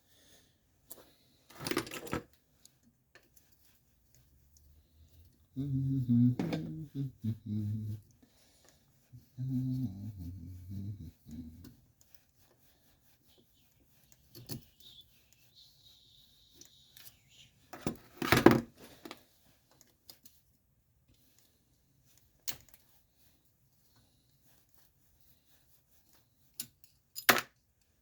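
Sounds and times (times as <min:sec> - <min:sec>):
metal parts clicking and clattering: 0:01.5 - 0:02.3.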